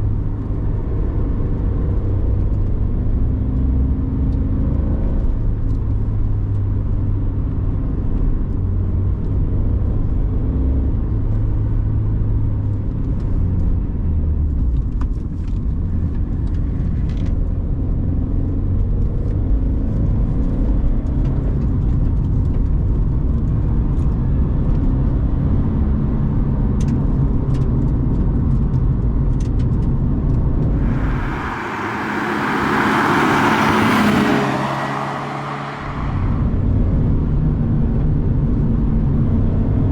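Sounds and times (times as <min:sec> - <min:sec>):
car engine droning: 0:30.7 - 0:37.2
loud rushing hiss: 0:30.8 - 0:36.4.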